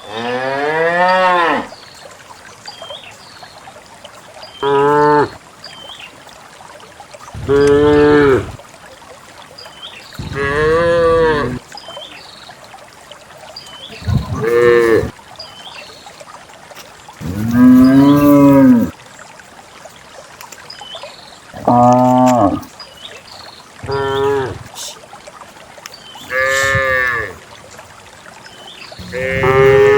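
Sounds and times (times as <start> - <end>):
cows mooing: 0.1 - 1.7, 7.4 - 8.5, 10.2 - 11.6, 14.0 - 15.1, 17.2 - 18.9, 21.6 - 22.7, 23.8 - 24.7, 26.2 - 27.4, 29.0 - 29.9.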